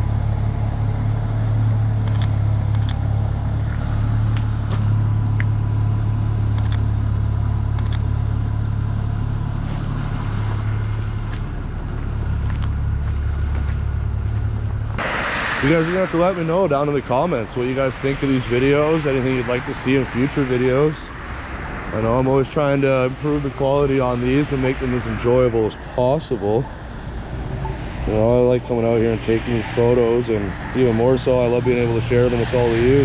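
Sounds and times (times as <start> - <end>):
vehicle engine rumbling: 0.0 - 33.0
sharp clicks: 2.0 - 3.0, 6.5 - 6.9, 7.7 - 8.1.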